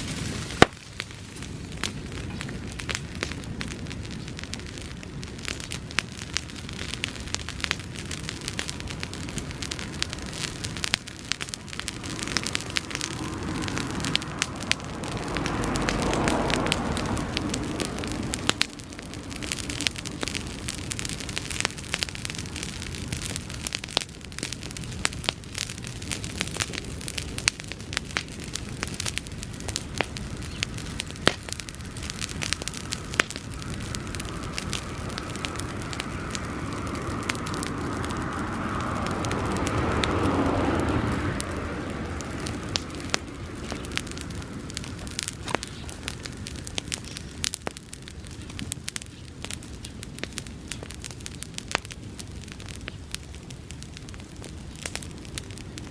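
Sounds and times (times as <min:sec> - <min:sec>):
dry grass fire crackling and popping: 0:00.0 - 0:55.9
rushing swell: 0:08.6 - 0:21.6, 0:30.8 - 0:45.5.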